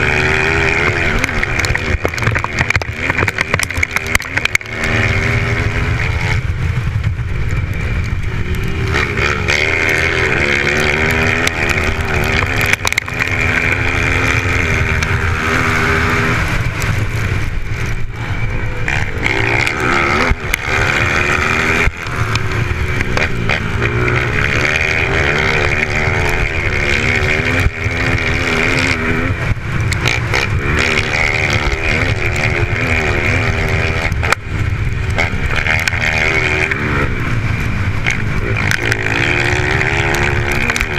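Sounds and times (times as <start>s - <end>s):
dirt bike engines revving: 0.0s - 40.9s
sharp clicks: 9.8s - 18.0s.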